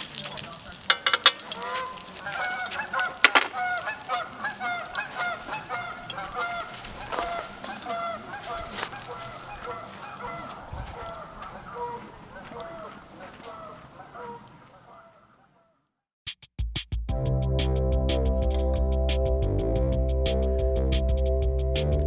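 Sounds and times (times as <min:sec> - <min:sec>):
geese honking: 0:00.2 - 0:15.8.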